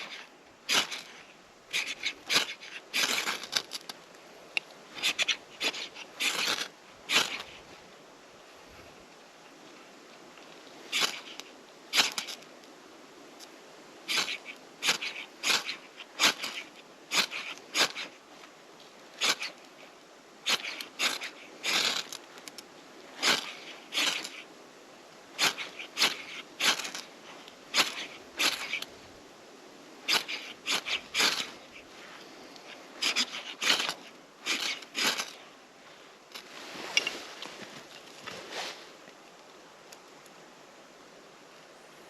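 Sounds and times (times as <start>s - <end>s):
short sharp scraping strokes: 23.2s - 24.5s, 25.4s - 28.9s, 30.0s - 35.4s.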